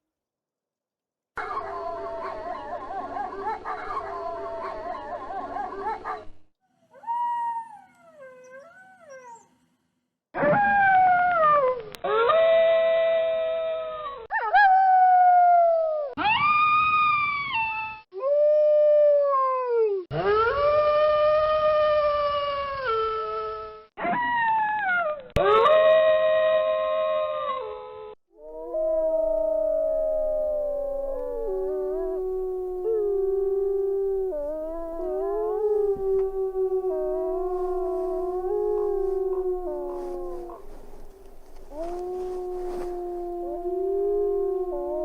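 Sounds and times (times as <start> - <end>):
wolves howling: 1.4 - 6.3, 28.4 - 45.0.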